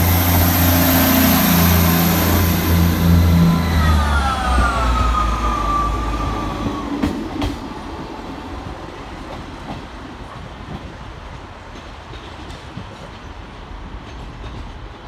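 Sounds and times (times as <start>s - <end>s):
falling whine: 0.0s - 6.9s
diesel train engine: 0.0s - 10.4s.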